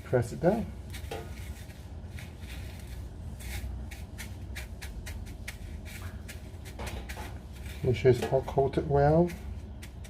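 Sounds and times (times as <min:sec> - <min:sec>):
low steady hum: 0:00.0 - 0:10.0
breadcrumbs rustling under hands: 0:00.1 - 0:10.0.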